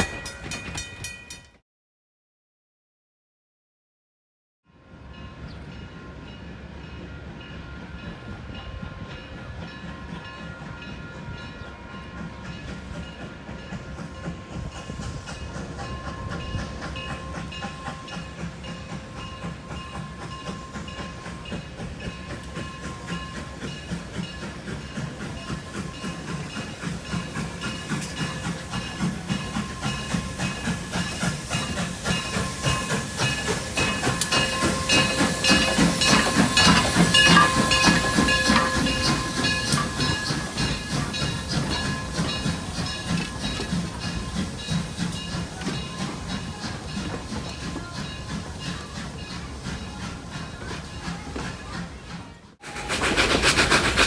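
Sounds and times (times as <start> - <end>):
train wheels clicking over rail joints: 0.0 - 1.6, 12.2 - 54.0
steam hiss: 12.2 - 54.0.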